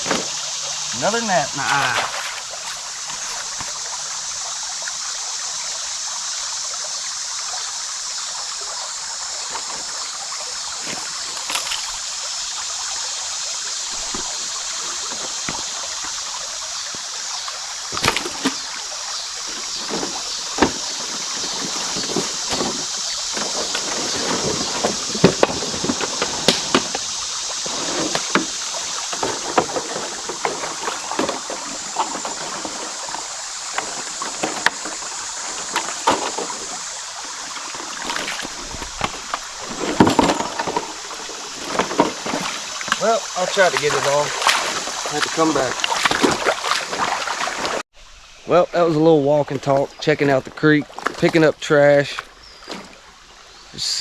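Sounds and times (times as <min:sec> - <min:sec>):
person wading through water: 0:00.0 - 0:04.3, 0:09.3 - 0:12.8, 0:13.8 - 0:47.8, 0:50.4 - 0:51.4
creek water running: 0:00.0 - 0:54.0.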